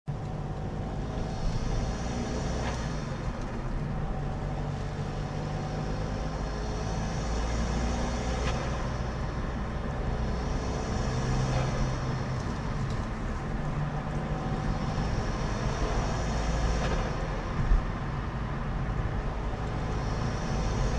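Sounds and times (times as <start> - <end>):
diesel engine revving: 0.3 - 20.9.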